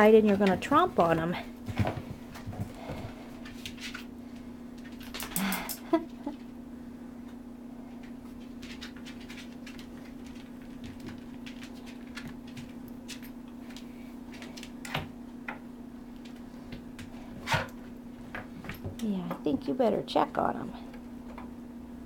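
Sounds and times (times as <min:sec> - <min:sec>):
puppies scratching: 0:00.0 - 0:05.4, 0:08.0 - 0:14.8
steady low hum: 0:00.0 - 0:22.0.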